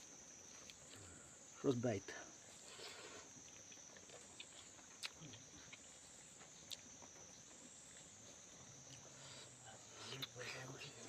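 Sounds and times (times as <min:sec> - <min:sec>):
person chewing food: 0:02.5 - 0:06.9.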